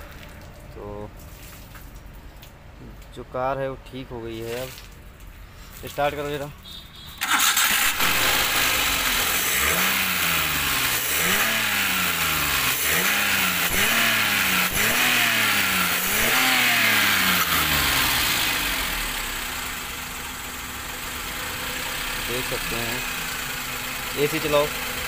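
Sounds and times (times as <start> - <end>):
car engine revving: 7.2 - 20.0.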